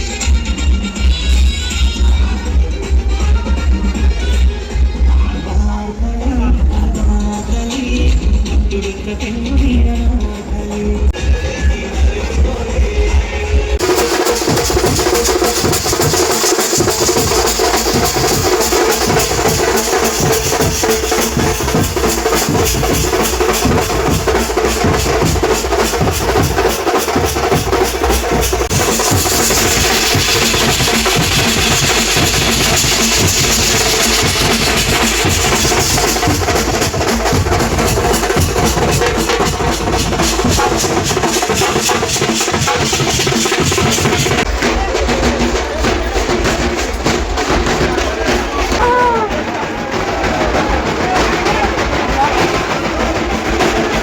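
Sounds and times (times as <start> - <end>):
fast ensemble drumming: 10.9 - 54.0
cymbals: 13.7 - 54.0.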